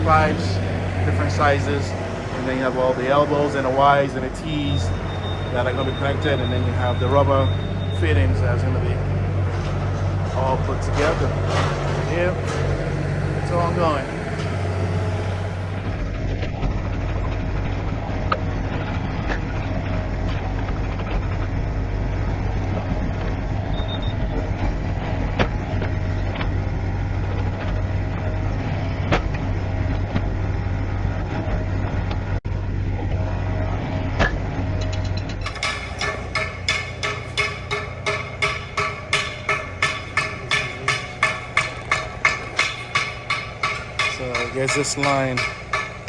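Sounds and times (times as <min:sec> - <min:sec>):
heavy machinery engine rumbling: 0:00.0 - 0:46.0
clicks and knocks: 0:09.0 - 0:16.0, 0:34.8 - 0:46.0.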